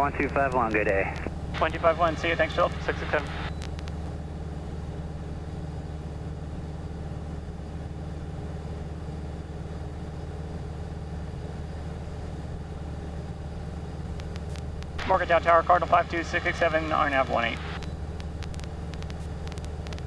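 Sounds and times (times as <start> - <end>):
airplane engine droning: 0.0 - 4.1, 14.1 - 20.0.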